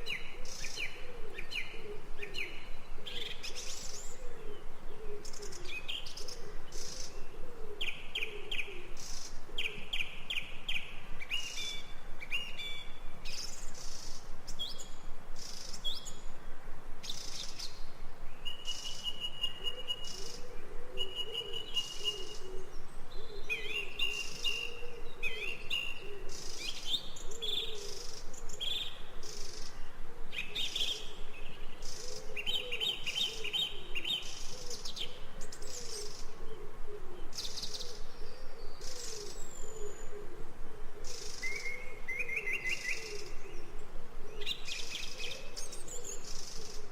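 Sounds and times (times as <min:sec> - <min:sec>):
birds chirping and trilling: 0:17.0 - 0:46.9
low wavering bird call: 0:18.4 - 0:29.0.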